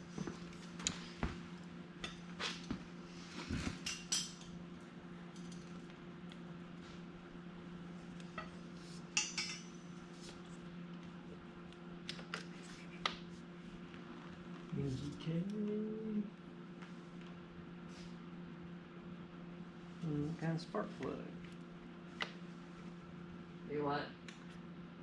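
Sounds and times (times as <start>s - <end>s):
steady low hum: 0.0s - 25.0s
metal tools clinking: 9.2s - 9.7s.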